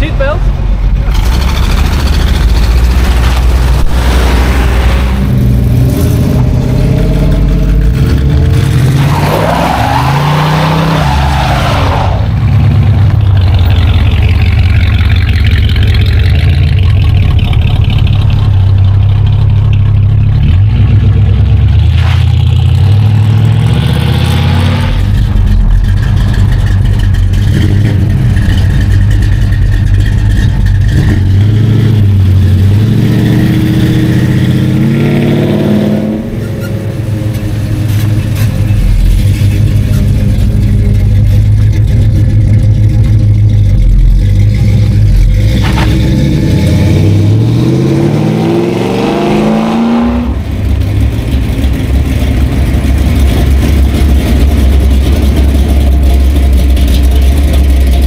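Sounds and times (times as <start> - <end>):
cars driving past revving: 1.0 - 16.4, 44.5 - 55.7.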